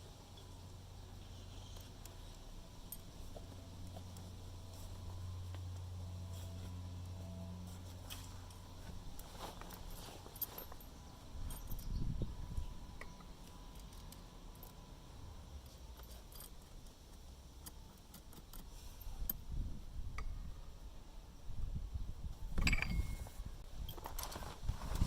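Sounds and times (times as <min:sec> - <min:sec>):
metal tools clinking and knocking: 0:09.5 - 0:12.0, 0:22.6 - 0:24.2
short metallic ring: 0:22.6 - 0:23.4.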